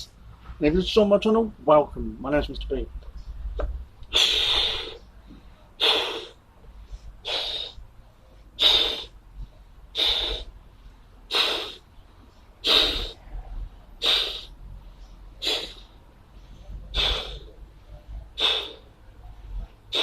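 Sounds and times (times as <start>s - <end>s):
person blowing up balloon: 4.1s - 5.0s, 5.8s - 6.4s, 7.2s - 7.8s, 8.6s - 9.1s, 9.9s - 10.5s, 11.3s - 11.8s, 12.6s - 13.2s, 14.0s - 14.5s, 15.4s - 15.9s, 16.9s - 17.5s, 18.4s - 18.9s.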